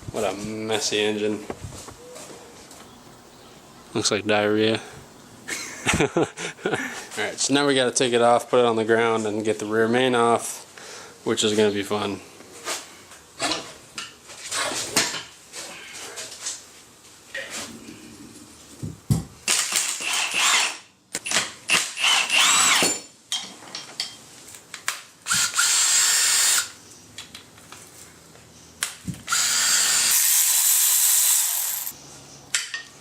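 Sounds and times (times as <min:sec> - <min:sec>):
cordless drill running: 0:19.6 - 0:20.8, 0:21.8 - 0:22.8, 0:25.3 - 0:26.8, 0:29.3 - 0:32.0.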